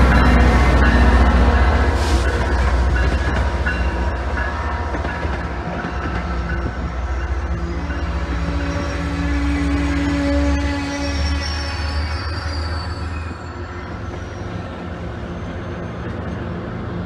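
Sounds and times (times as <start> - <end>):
rail clatter: 0.0 - 9.1
train wheels rumbling on track: 0.0 - 17.0.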